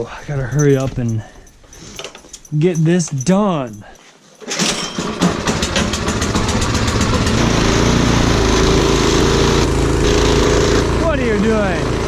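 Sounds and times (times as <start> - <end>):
snowblower engine starting: 4.4 - 12.0.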